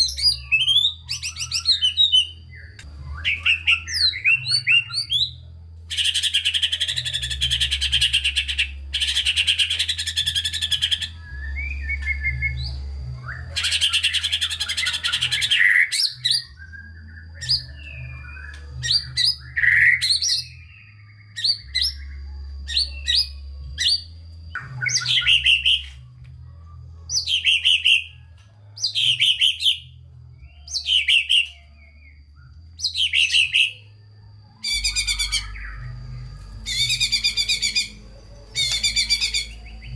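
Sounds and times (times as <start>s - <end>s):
songbird singing rattling trills: 27.0s - 39.9s.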